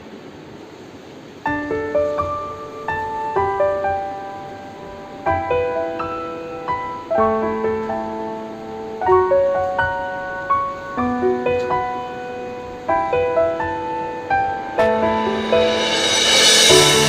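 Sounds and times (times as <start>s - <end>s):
gentle piano melody: 1.3s - 17.0s.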